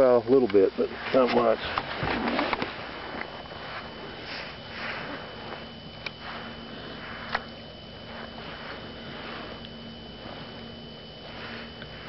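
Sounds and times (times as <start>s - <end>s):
low hum: 0.0s - 12.0s
person breathing and sniffing: 3.7s - 9.6s, 10.2s - 12.0s.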